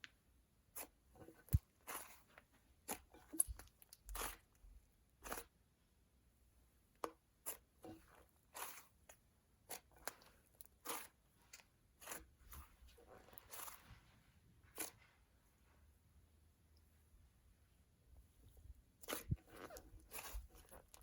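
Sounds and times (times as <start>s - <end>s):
slime squished by hand: 19.0s - 21.0s.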